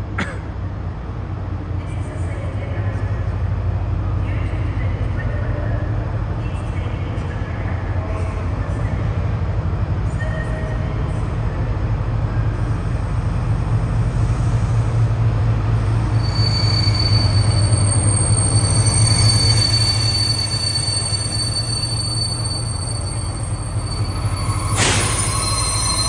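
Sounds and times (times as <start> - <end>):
train rumbling: 0.0 - 26.0
metallic wheel squeal: 16.0 - 26.0.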